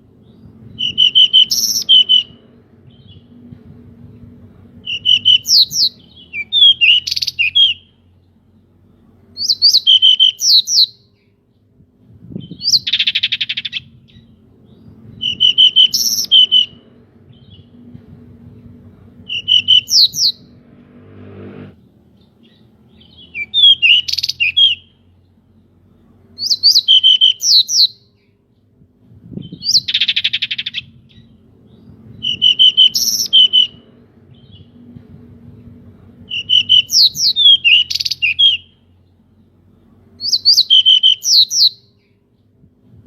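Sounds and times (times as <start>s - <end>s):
bird whistled chirpy song: 0.2s - 3.4s, 4.8s - 8.0s, 9.4s - 11.3s, 12.3s - 17.8s, 19.3s - 20.5s, 22.2s - 25.0s, 26.4s - 28.4s, 29.4s - 34.8s, 36.3s - 38.9s, 40.2s - 42.2s.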